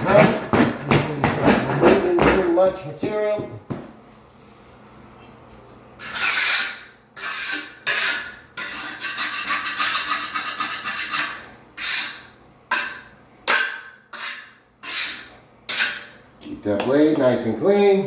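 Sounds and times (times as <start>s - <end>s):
float blade scraping mortar: 6.0s - 16.1s.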